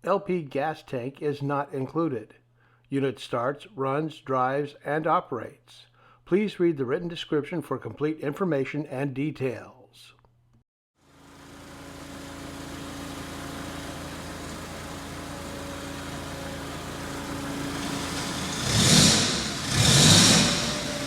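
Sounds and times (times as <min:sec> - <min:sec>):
propane engine running: 0:11.0 - 0:21.0.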